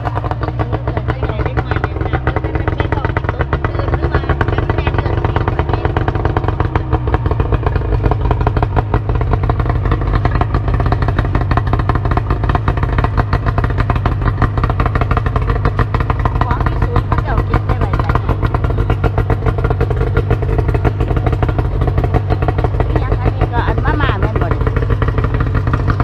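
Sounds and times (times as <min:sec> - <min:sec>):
small engine running: 0:00.0 - 0:26.0.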